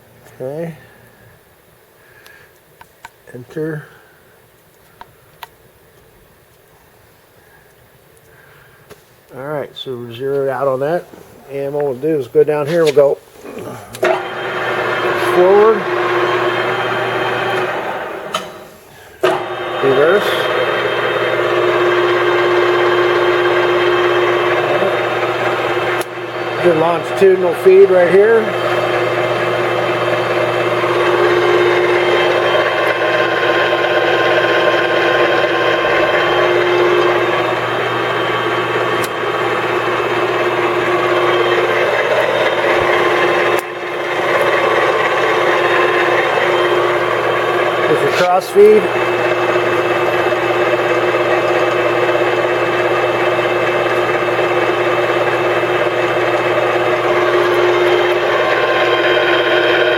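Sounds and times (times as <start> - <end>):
lathe machine hum: 10.4 - 59.9
whining gear tones: 13.4 - 59.9.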